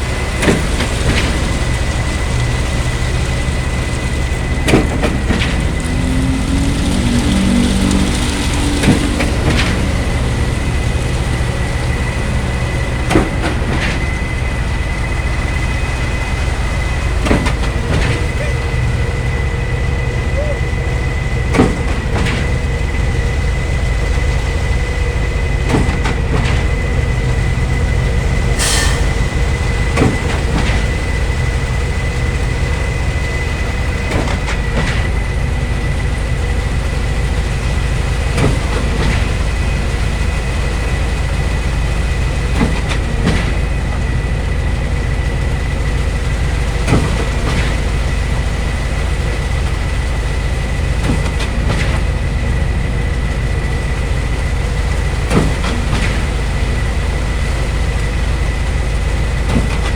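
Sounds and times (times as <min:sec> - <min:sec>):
diesel machinery rumbling and whining: 0:00.0 - 0:59.9
short hiss: 0:28.6 - 0:30.0.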